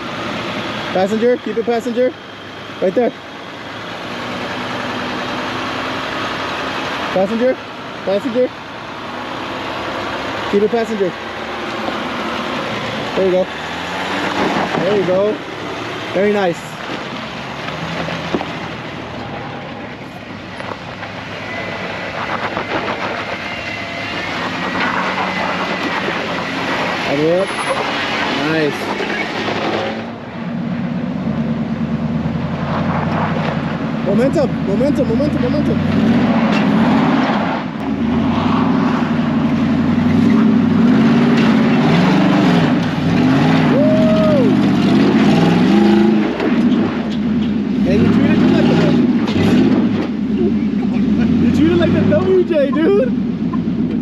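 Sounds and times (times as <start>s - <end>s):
off-road vehicle engine under load: 0.0s - 54.0s.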